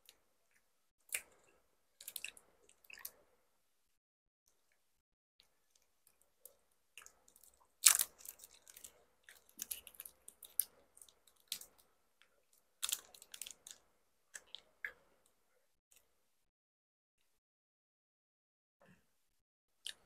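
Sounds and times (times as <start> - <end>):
close chewing of rice cake: 1.0 - 3.2, 5.4 - 15.0.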